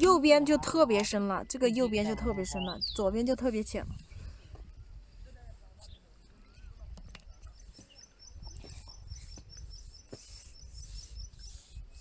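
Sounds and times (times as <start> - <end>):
wind on microphone: 0.0 - 12.0
bird chirping rapidly: 1.9 - 3.3.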